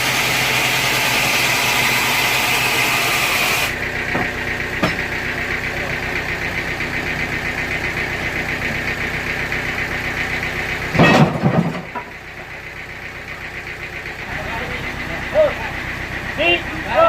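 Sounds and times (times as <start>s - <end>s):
sawmill machinery drone: 0.0s - 17.0s
rough rumbling clatter: 3.7s - 17.0s.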